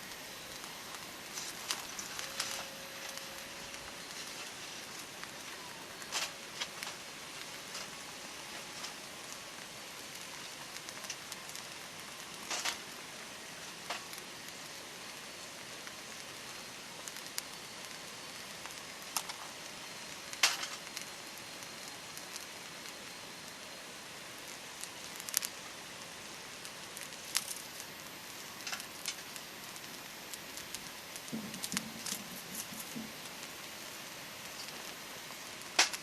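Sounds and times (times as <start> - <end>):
campfire burning with crackling: 0.0 - 36.0.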